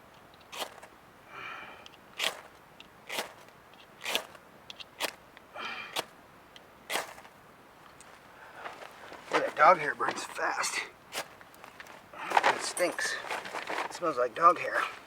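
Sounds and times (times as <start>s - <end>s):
fire-starter rod scraping: 0.3s - 0.9s, 1.8s - 5.2s, 6.9s - 7.3s, 8.6s - 15.0s.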